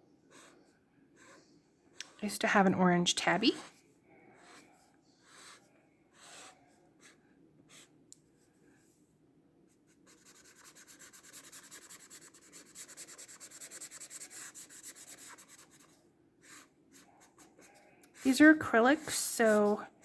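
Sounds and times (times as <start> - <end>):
marker scratching on paper: 0.3 - 0.6, 1.2 - 2.7, 4.4 - 7.9, 9.9 - 20.0.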